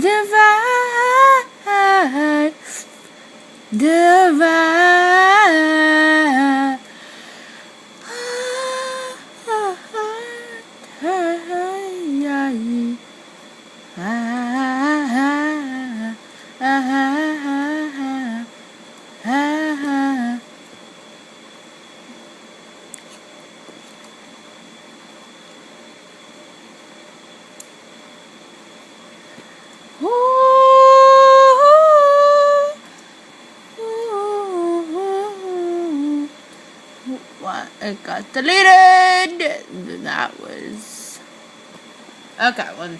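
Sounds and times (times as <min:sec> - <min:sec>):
person humming a melody: 0:08.0 - 0:13.0, 0:14.0 - 0:18.5, 0:19.2 - 0:20.4, 0:30.0 - 0:32.9, 0:33.8 - 0:36.4.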